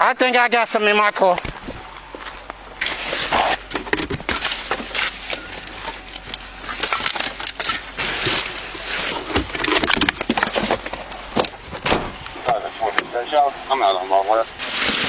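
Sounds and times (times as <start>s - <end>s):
footsteps: 1.3s - 7.0s.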